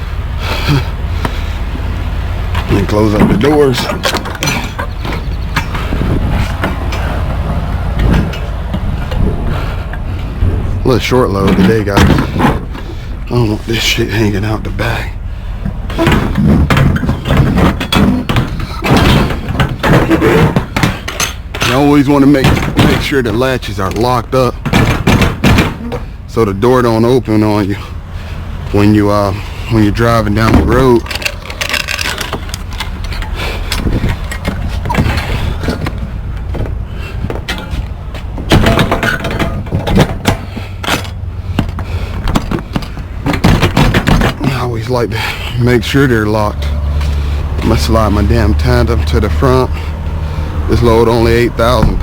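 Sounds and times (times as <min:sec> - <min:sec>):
low rumble: 0:00.0 - 0:19.7
metal doors banging shut: 0:02.4 - 0:13.0, 0:15.6 - 0:27.9, 0:28.6 - 0:45.0.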